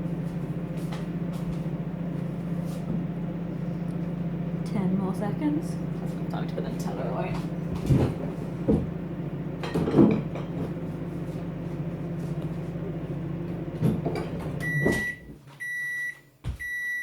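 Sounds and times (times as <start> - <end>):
microwave oven humming: 0.0 - 17.0
microwave beeps: 14.6 - 17.0.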